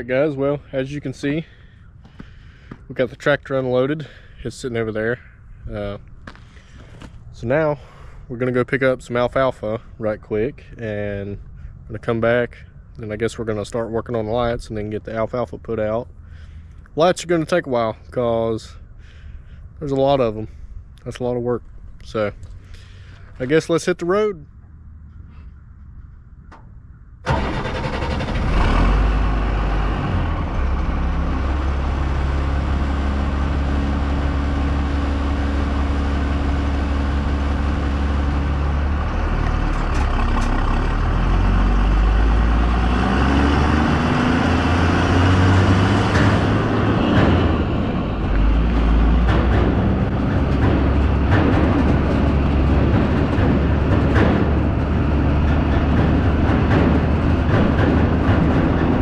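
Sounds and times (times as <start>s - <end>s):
road noise: 0.0s - 59.0s
truck engine running: 27.2s - 59.0s
knocks and rattles: 30.1s - 59.0s.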